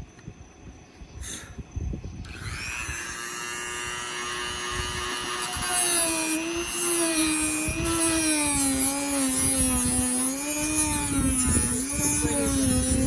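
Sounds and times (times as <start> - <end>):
power tool cutting wood: 2.2 - 13.0.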